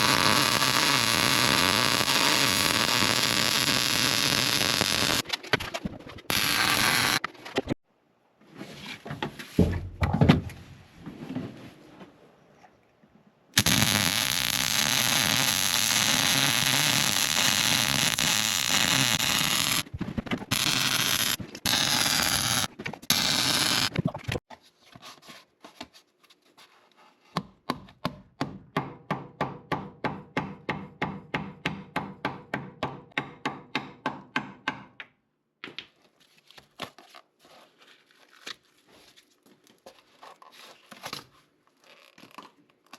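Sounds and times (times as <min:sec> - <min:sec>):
loud hissing tool: 0:00.0 - 0:05.2, 0:06.3 - 0:07.2, 0:13.6 - 0:19.8, 0:20.5 - 0:23.9.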